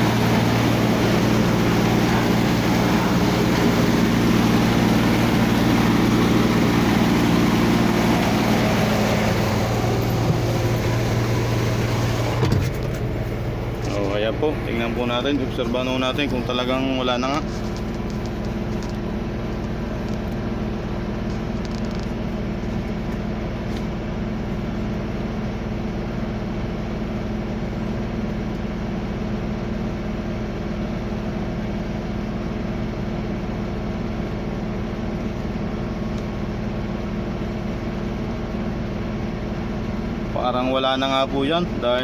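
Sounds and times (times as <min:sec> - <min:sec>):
refrigeration unit humming: 0:00.0 - 0:42.0.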